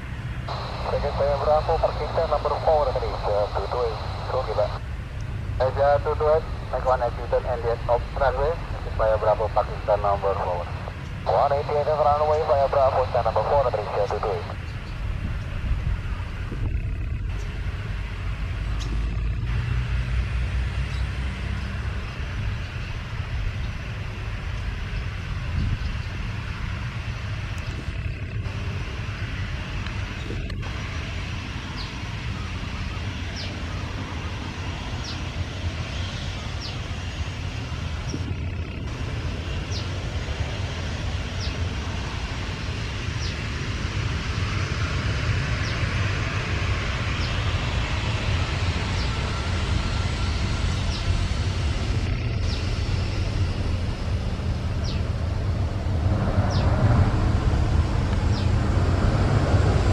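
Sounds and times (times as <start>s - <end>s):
jet engines rumbling: 0.0s - 59.9s.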